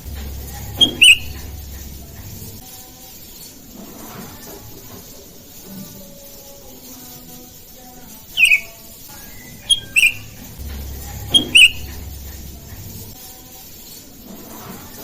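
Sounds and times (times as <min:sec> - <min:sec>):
bulbuls calling: 0:00.0 - 0:02.6, 0:08.4 - 0:13.1.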